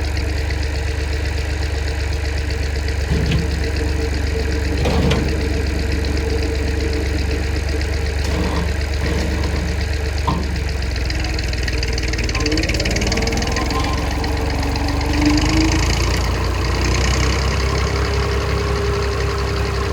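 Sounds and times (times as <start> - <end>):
tractor engine running: 0.0 - 19.9.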